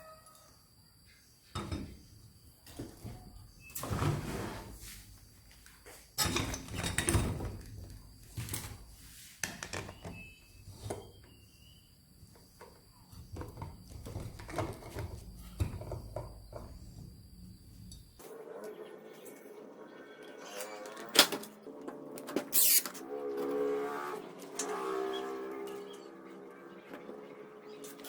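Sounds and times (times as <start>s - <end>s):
objects knocking and clattering: 12.4s - 17.2s.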